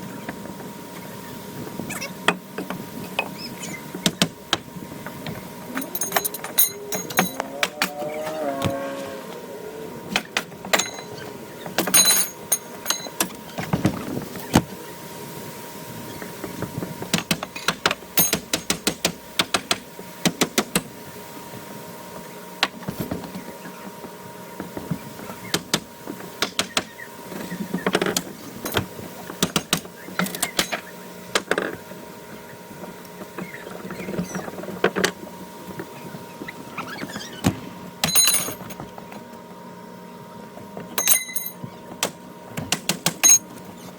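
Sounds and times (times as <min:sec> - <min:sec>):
wood and nails creaking: 0:05.1 - 0:09.4.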